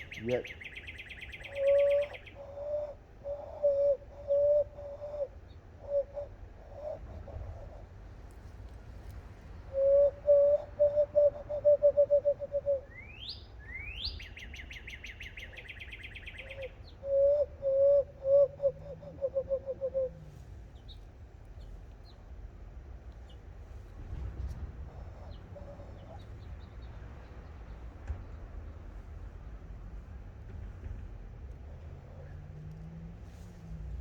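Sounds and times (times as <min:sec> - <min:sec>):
bird singing and trilling: 0:00.0 - 0:07.5, 0:09.8 - 0:20.1.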